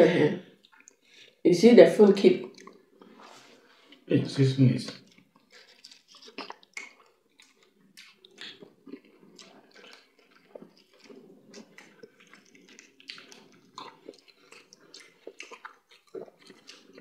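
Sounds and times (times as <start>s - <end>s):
chewing and mouth smacks: 0.5s - 1.1s, 2.4s - 4.1s, 4.9s - 17.0s
fingers squishing soft food: 4.9s - 17.0s.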